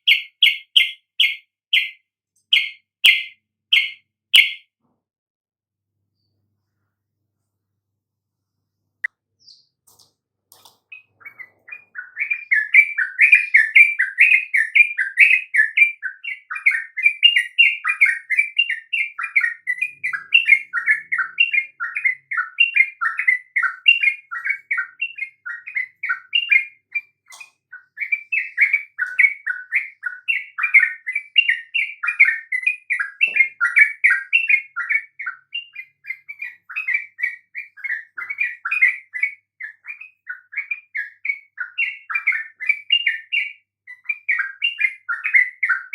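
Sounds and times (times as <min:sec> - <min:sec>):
bird singing bubbling whistles: 0:10.9 - 0:45.9.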